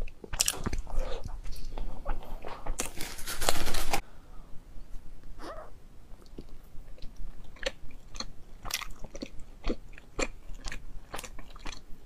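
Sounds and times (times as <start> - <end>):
wet chewing smacks and clicks: 6.2 - 11.9.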